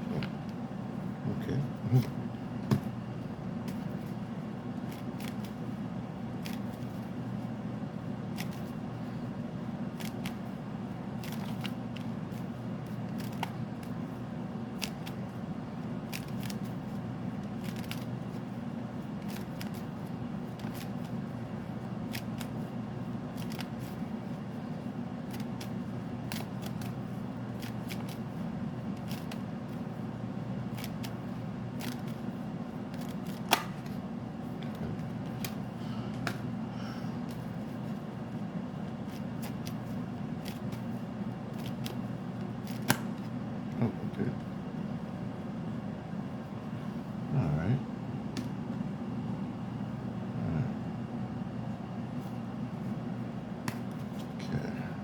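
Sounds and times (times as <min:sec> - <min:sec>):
cards being shuffled: 0:04.8 - 0:05.6, 0:06.4 - 0:07.1, 0:08.3 - 0:08.8, 0:10.0 - 0:10.4, 0:11.2 - 0:14.0, 0:14.7 - 0:15.3, 0:16.0 - 0:18.5, 0:19.2 - 0:21.2, 0:22.0 - 0:22.6, 0:23.3 - 0:24.0, 0:25.2 - 0:28.3, 0:28.9 - 0:29.9, 0:30.7 - 0:31.2, 0:31.8 - 0:32.3, 0:32.9 - 0:34.0, 0:38.9 - 0:43.4.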